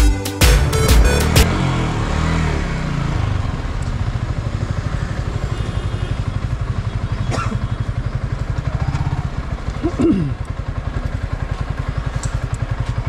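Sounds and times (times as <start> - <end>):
motorcycle engine idling: 2.6 - 13.0.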